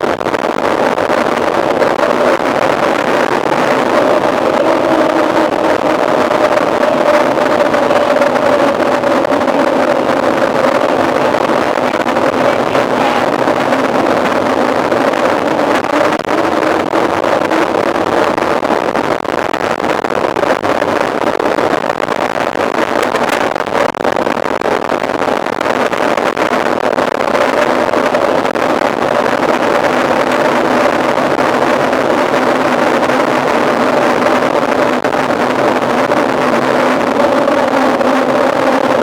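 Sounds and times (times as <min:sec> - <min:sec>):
droning tyre hum: 0:00.0 - 0:39.0
wind rushing over microphone: 0:00.0 - 0:39.0.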